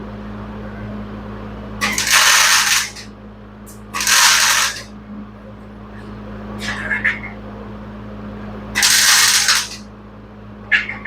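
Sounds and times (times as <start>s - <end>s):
steady low hum: 0.0s - 11.0s
welder crackling: 1.8s - 3.0s, 3.7s - 4.9s, 8.8s - 9.8s.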